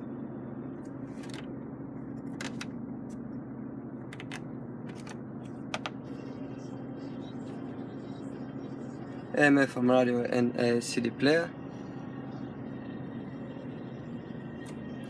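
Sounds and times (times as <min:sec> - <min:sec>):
low cabin hum: 0:00.0 - 0:15.0
dashboard buttons clicking: 0:04.1 - 0:05.9.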